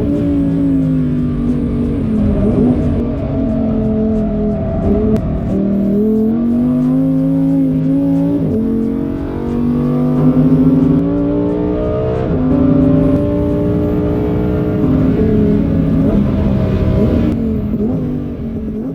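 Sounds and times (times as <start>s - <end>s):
car engine accelerating: 0.0s - 18.9s.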